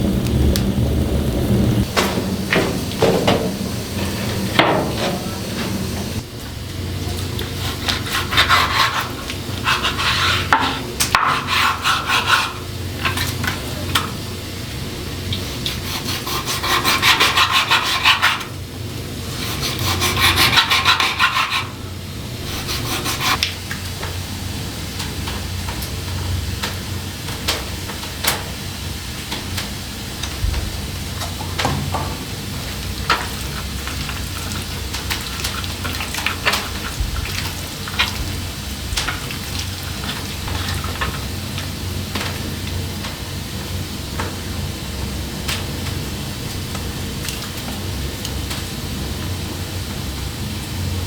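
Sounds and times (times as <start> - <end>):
hand tool rasping on wood: 7.6 - 13.2, 15.5 - 18.5, 19.3 - 21.8, 22.4 - 23.4.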